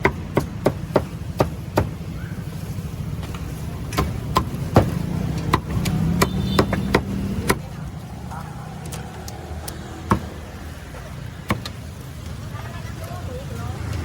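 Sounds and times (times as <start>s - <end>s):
sharp knocks: 3.9s - 7.6s.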